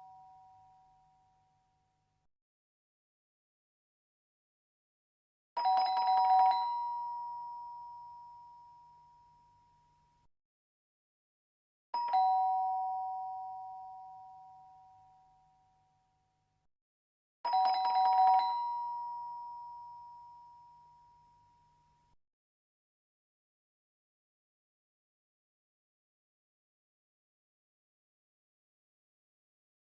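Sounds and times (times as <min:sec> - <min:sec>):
two-tone doorbell chime: 0:00.0 - 0:01.6, 0:05.6 - 0:10.0, 0:12.0 - 0:15.9, 0:17.5 - 0:22.0
doorbell rattle: 0:05.6 - 0:07.0, 0:17.5 - 0:19.2.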